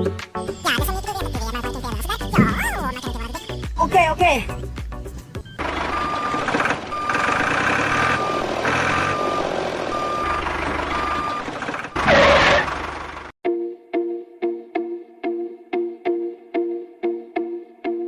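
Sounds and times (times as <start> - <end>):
truck engine running: 4.5 - 13.4
reversing alarm beeping: 5.4 - 12.8.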